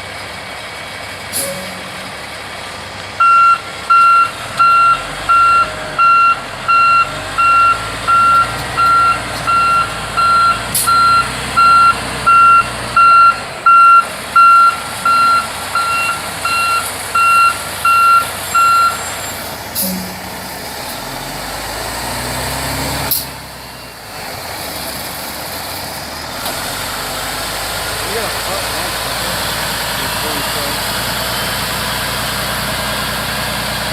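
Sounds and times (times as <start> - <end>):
diesel engine running low: 0.0 - 33.9
truck reversing alarm beeping: 1.4 - 24.1.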